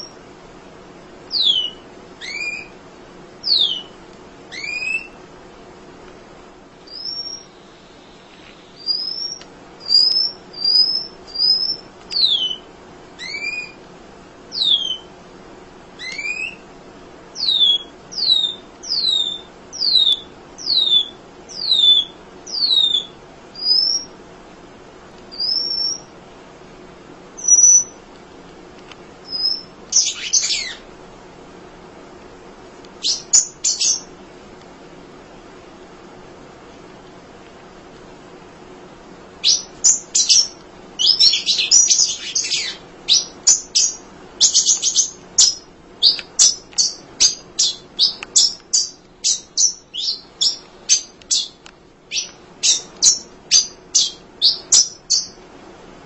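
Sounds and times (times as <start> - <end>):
bird chirping: 0.0 - 0.2, 1.3 - 2.8, 3.4 - 5.2, 6.9 - 13.8, 14.5 - 15.1, 16.0 - 16.6, 17.3 - 24.2, 25.3 - 26.1, 27.4 - 28.0, 29.2 - 30.9, 33.0 - 34.1, 39.4 - 55.4.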